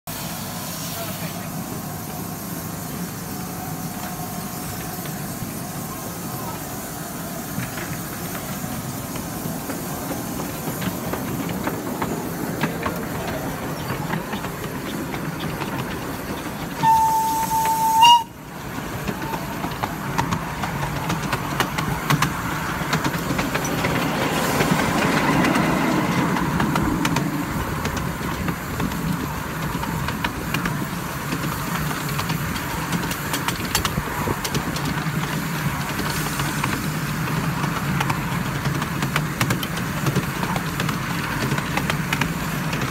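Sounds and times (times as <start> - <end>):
steam locomotive rumble and hiss: 0.0 - 42.9
wheels clicking over rails: 7.5 - 42.9
steam whistle: 16.8 - 18.5.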